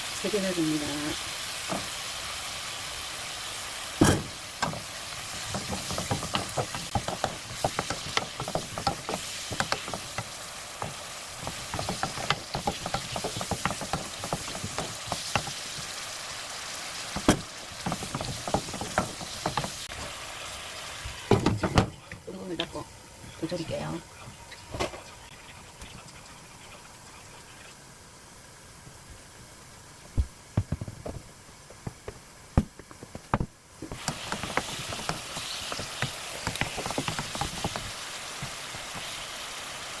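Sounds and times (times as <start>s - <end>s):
food sizzling in a pan: 0.0s - 40.0s
utensil scraping a pan: 5.4s - 15.9s.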